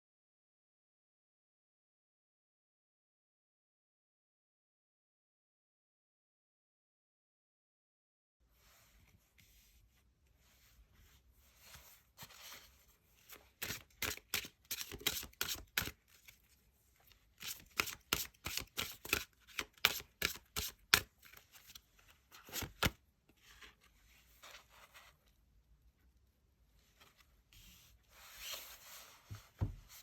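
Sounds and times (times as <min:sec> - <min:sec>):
cards being shuffled: 0:13.3 - 0:16.5, 0:17.3 - 0:23.0.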